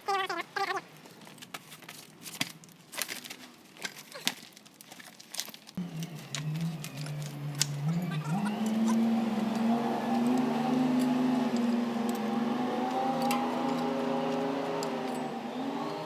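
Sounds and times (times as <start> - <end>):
vehicle engine running: 5.8 - 16.0.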